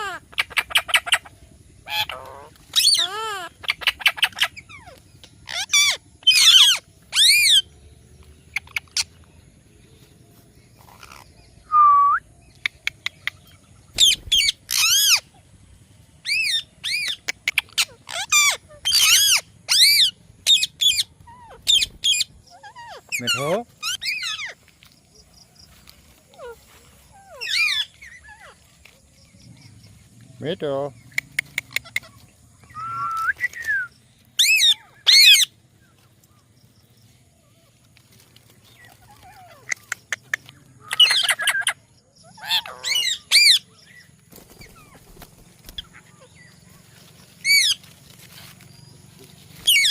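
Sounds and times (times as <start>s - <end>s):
parakeet calling: 0.0s - 7.8s, 10.8s - 11.5s, 12.5s - 15.5s, 16.2s - 24.6s, 26.3s - 28.7s, 34.4s - 35.5s, 40.8s - 46.8s, 47.4s - 47.8s, 49.6s - 49.9s.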